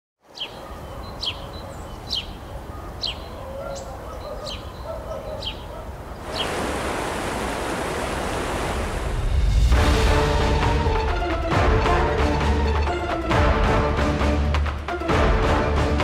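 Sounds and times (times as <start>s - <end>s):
loud steady rushing noise: 6.2s - 10.4s
low rumble: 8.1s - 10.9s.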